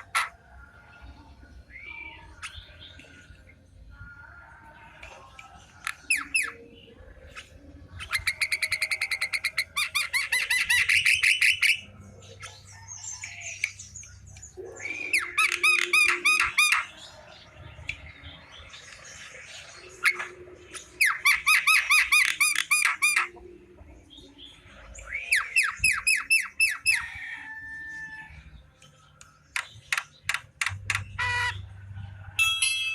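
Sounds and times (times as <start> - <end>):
bird calling harsh notes: 14.7 - 17.0, 21.0 - 23.4, 29.9 - 31.8.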